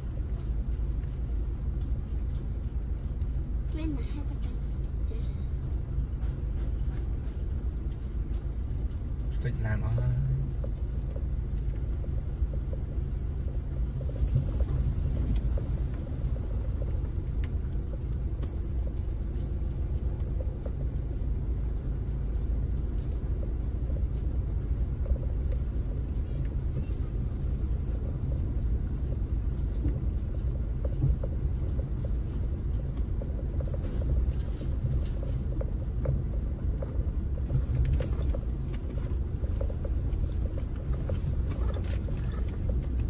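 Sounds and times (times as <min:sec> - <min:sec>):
vehicle engine rumble: 0:00.0 - 0:43.0.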